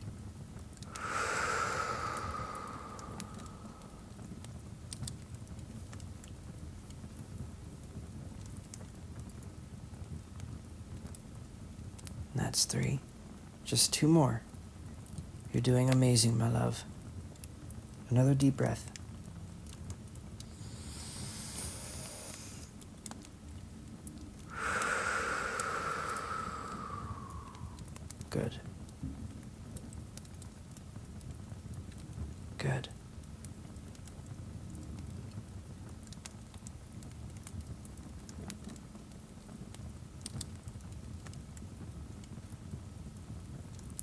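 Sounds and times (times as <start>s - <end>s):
fireplace crackling: 0.1s - 44.0s
person inhaling through the nose: 0.9s - 4.1s, 20.5s - 22.8s, 24.5s - 27.8s
person exhaling through the mouth: 0.9s - 4.2s, 20.5s - 22.7s, 24.5s - 27.8s.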